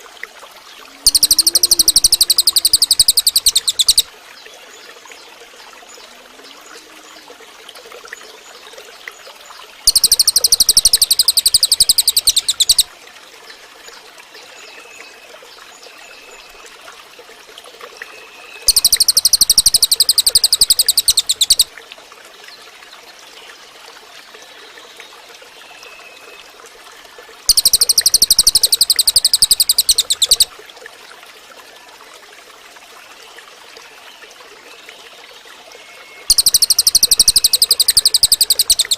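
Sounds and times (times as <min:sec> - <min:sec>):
bird buzzing trills: 0:01.1 - 0:04.0, 0:09.9 - 0:12.9, 0:18.7 - 0:21.7, 0:27.5 - 0:30.5, 0:36.3 - 0:38.9
faint short bird whistles: 0:36.3 - 0:38.9.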